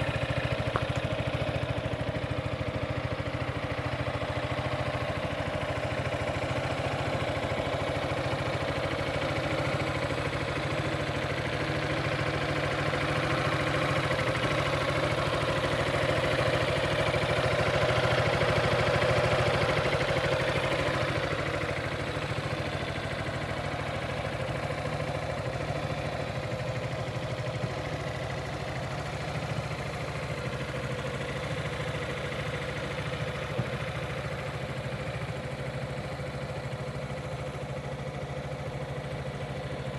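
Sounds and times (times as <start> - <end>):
scooter engine idling: 0.0 - 39.9.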